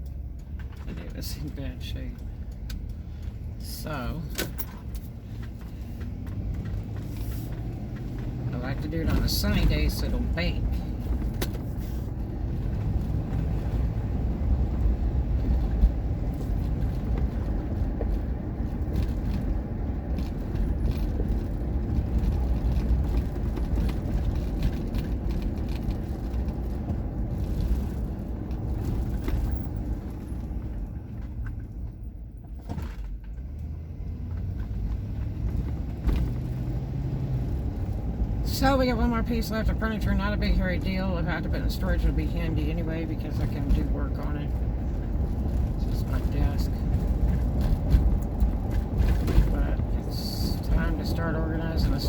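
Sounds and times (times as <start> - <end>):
car road and engine rumble: 0.0 - 52.0.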